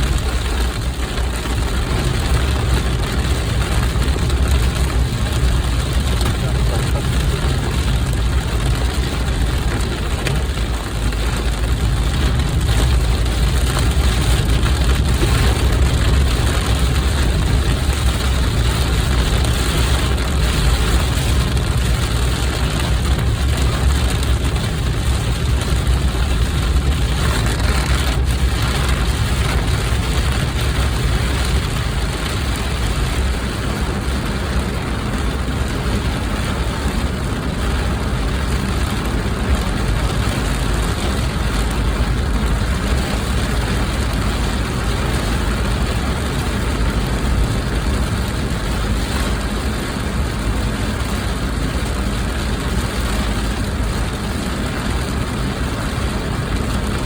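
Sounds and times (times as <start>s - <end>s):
car engine rumble and road noise: 0.0s - 57.0s
heavy rain on a car: 0.0s - 57.0s.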